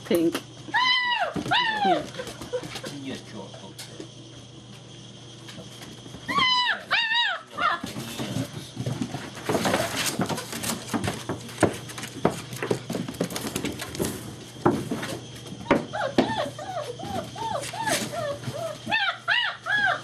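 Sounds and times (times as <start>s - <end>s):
puppies yelping: 0.7s - 2.6s, 6.2s - 8.2s, 15.6s - 20.0s
puppies scuffling and knocking: 1.4s - 3.1s, 5.4s - 19.1s.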